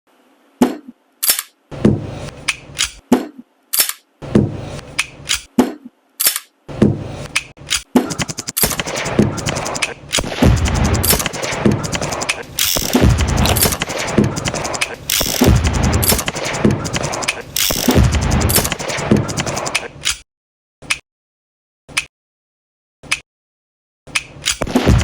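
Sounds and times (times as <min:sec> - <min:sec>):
gunshots: 0:08.1 - 0:19.9, 0:24.6 - 0:25.0.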